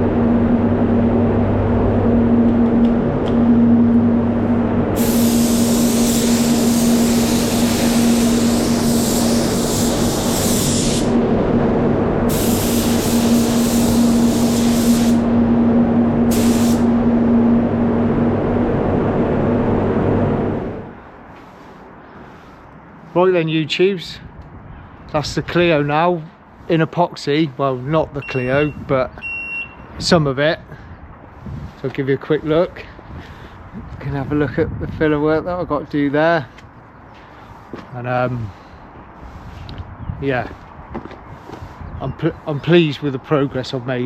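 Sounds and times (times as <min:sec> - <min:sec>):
steady machine hum: 0:00.0 - 0:22.2
spray gun hissing: 0:04.9 - 0:11.2, 0:12.3 - 0:15.5, 0:16.1 - 0:17.2.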